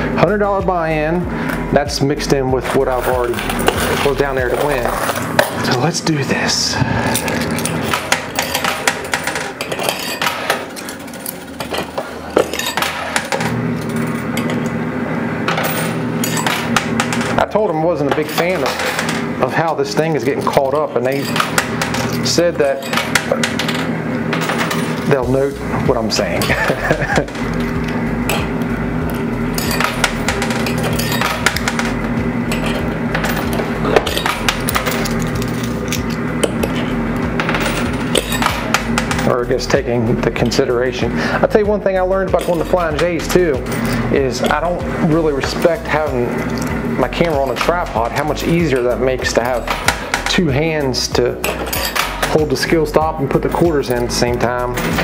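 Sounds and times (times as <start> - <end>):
steady hum: 0.0 - 55.0
coins clinking and clattering: 2.9 - 5.9, 7.0 - 14.7, 15.5 - 17.4, 18.0 - 25.3, 26.2 - 39.4, 42.3 - 44.8, 45.4 - 50.4, 51.3 - 52.8, 53.4 - 55.0.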